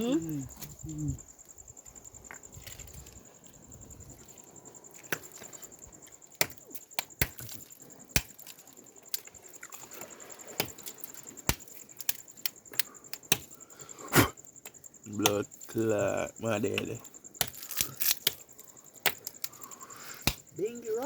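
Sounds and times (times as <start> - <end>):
sharp cracks and clicks: 6.4 - 9.3, 10.6 - 13.6, 17.4 - 19.6.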